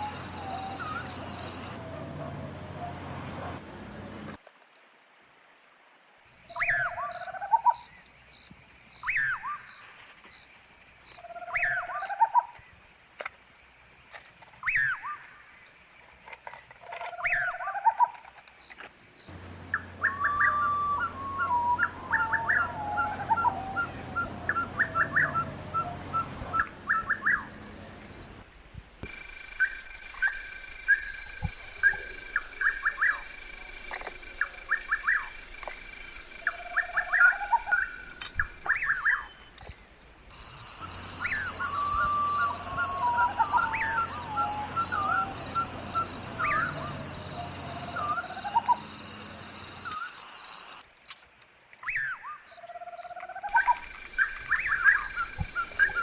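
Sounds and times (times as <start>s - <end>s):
birds whistling calls: 0.0s - 2.0s, 19.3s - 27.7s, 29.0s - 39.6s, 40.4s - 49.0s, 53.5s - 56.0s
steady high whine: 53.5s - 56.0s.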